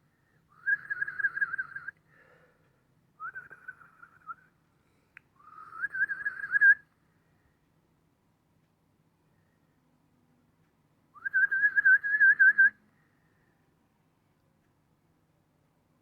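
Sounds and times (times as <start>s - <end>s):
warbling whistles: 0.6s - 1.9s, 5.4s - 6.8s.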